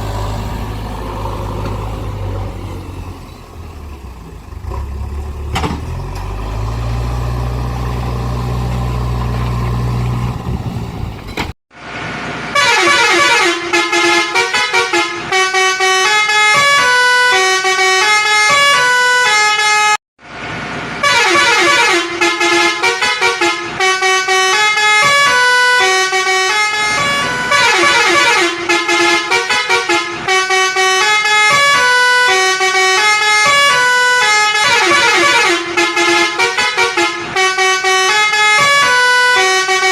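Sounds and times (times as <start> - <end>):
electronic toy horn tune: 21.0 - 39.9.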